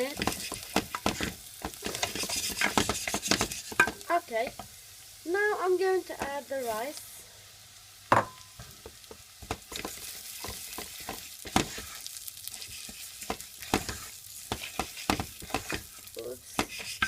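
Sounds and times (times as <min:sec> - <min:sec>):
spoon scraping a pan: 0:00.0 - 0:04.7, 0:09.4 - 0:17.0
frying sizzle: 0:00.0 - 0:17.0.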